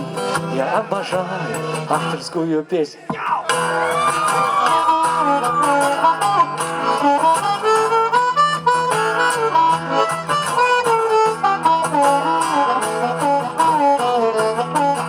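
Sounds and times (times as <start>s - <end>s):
strummed acoustic guitar: 0.0s - 2.5s, 3.1s - 15.0s
harmonica melody with bending notes: 3.5s - 15.0s.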